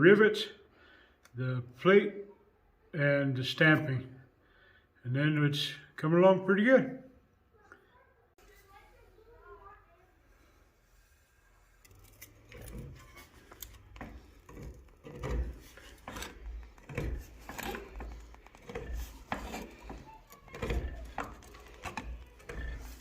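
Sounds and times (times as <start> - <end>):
metal tools knocking and scraping: 11.8 - 23.0.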